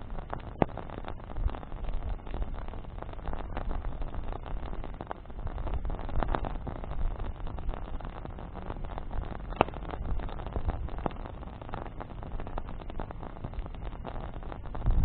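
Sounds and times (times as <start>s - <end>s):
campfire flames rumbling: 0.0s - 15.0s
sharp loud pop: 9.5s - 9.9s.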